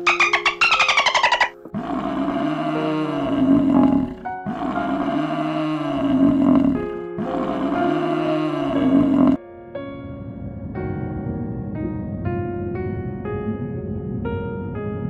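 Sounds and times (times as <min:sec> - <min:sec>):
soft background music: 0:00.0 - 0:15.0
buffalo bellowing: 0:00.1 - 0:09.4.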